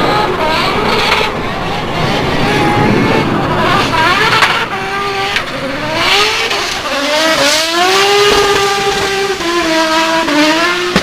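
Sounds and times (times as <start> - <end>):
car engine revving: 0.0 - 11.0
sharp crack: 2.3 - 7.3.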